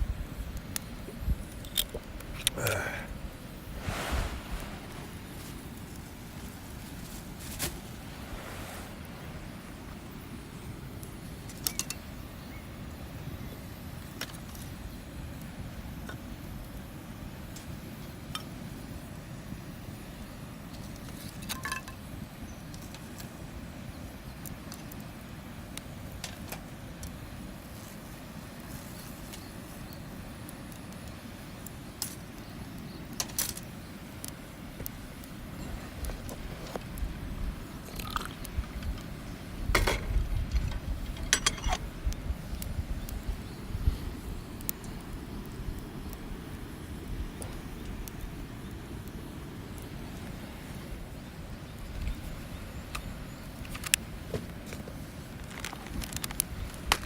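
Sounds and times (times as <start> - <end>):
campfire crackling: 0.0 - 57.0
low fire rumble: 0.0 - 57.0
fire pops and snaps: 0.4 - 3.0, 3.7 - 9.2, 24.3 - 50.5, 51.7 - 57.0.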